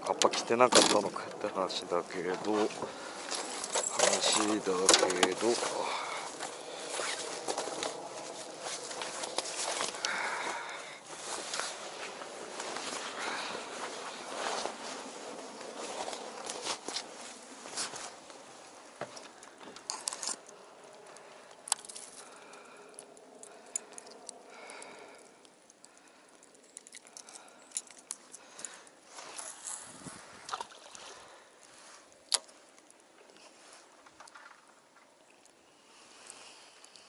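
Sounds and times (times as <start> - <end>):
fishing gear clicks and knocks: 0.0 - 12.3, 13.9 - 31.0, 31.6 - 35.6
water lapping against hull: 28.4 - 32.1.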